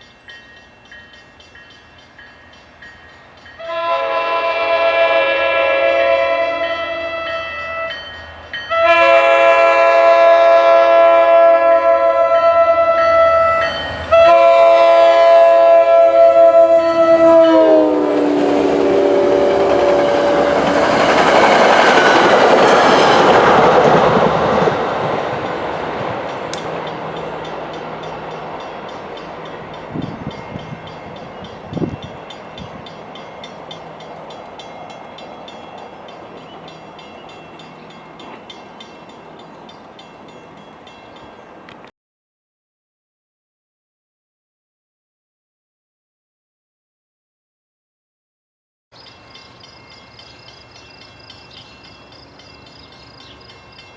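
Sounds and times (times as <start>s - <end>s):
rush of passing train: 0.0s - 41.9s, 49.0s - 53.9s
train horn chord: 3.6s - 20.9s.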